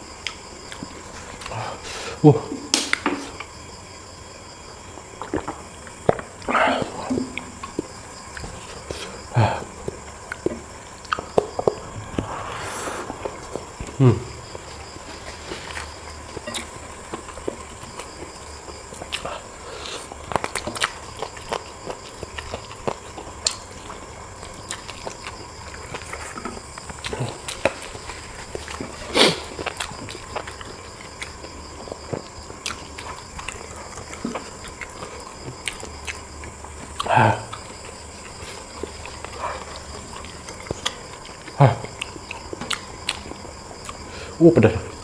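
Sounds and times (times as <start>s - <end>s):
wet smacks and clicks: 2.7s - 3.5s
chewing and biting: 5.1s - 44.4s.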